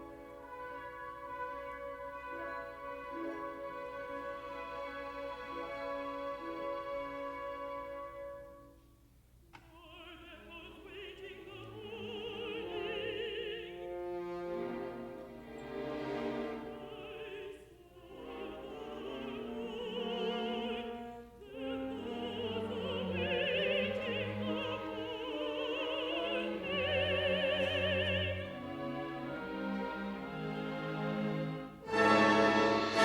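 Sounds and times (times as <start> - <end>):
symphony orchestra: 0.0 - 9.2, 9.9 - 33.0
contralto singing with vibrato: 9.7 - 14.5, 16.6 - 29.4.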